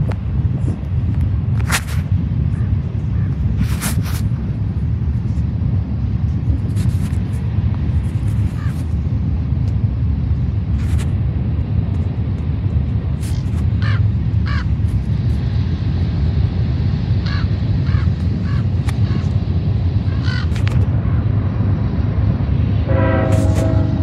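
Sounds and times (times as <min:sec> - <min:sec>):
low outdoor rumble: 0:00.0 - 0:24.0
bird cawing: 0:13.8 - 0:14.7, 0:17.2 - 0:19.2, 0:20.1 - 0:20.6.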